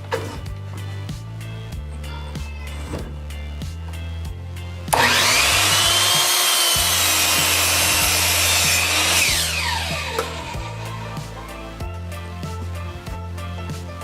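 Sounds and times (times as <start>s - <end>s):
miter saw cutting wood: 4.9s - 11.1s.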